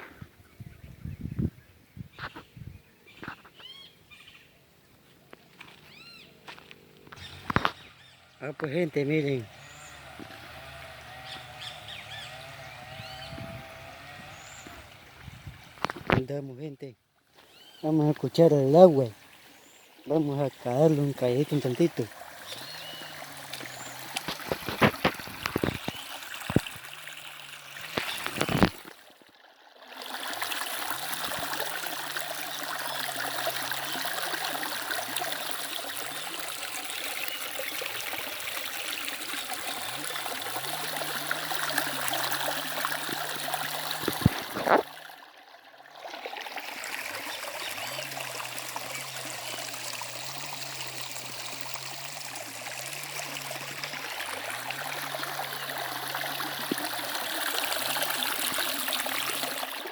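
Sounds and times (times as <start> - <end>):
river water rushing: 18.3 - 29.2, 29.9 - 45.1, 46.1 - 59.9.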